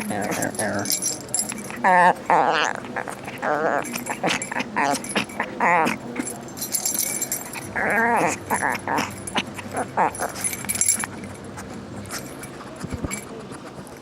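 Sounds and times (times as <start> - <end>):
light metallic jingling: 0.0 - 13.4
dog whining: 0.0 - 14.0.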